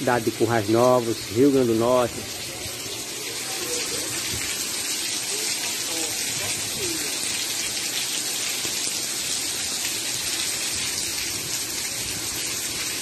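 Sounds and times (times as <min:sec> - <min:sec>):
rain falling on a street: 0:00.0 - 0:13.0.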